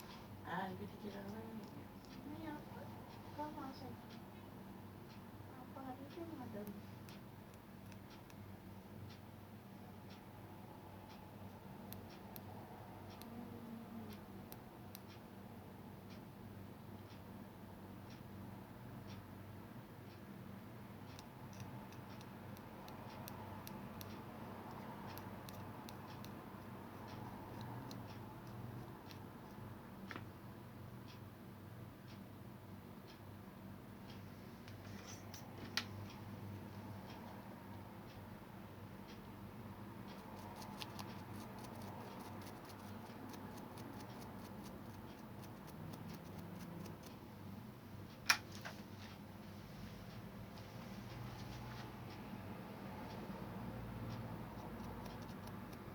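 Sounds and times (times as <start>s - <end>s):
low electrical hum: 0.0s - 55.9s
computer keyboard typing: 21.1s - 30.2s, 40.1s - 47.2s, 54.2s - 55.9s.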